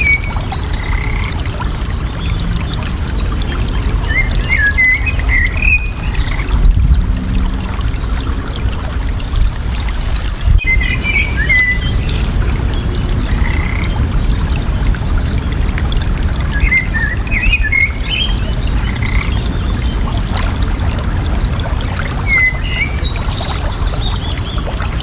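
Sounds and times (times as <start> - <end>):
flowing water rushing: 0.0 - 25.0
songbirds chirping: 10.1 - 20.3, 20.9 - 25.0.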